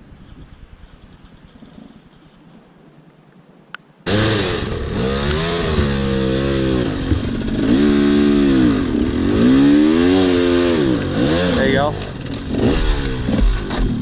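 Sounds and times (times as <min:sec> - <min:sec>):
dirt bike engine revving: 0:04.1 - 0:14.0.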